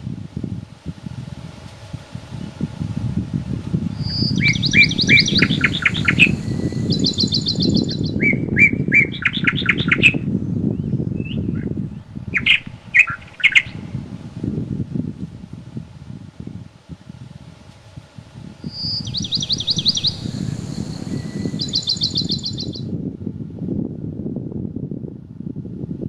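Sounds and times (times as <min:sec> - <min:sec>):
wind through woodland: 0:00.0 - 0:26.0
songbird singing: 0:03.8 - 0:15.3, 0:18.4 - 0:22.9.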